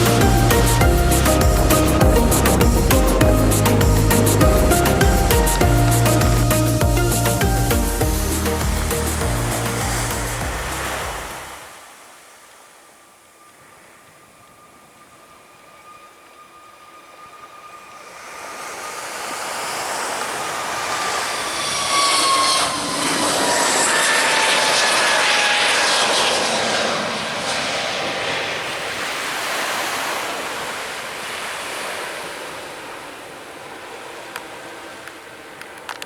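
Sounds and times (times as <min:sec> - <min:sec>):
engine whine gliding down: 0:00.0 - 0:11.7, 0:13.4 - 0:29.1
airliner passing overhead: 0:00.0 - 0:11.8, 0:13.2 - 0:36.0.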